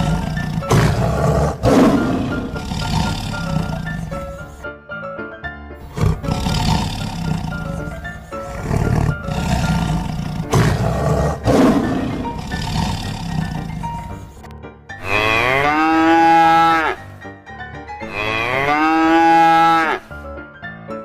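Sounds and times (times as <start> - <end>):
big cat roaring: 0.0 - 4.6, 5.8 - 14.4
background music: 0.0 - 21.0.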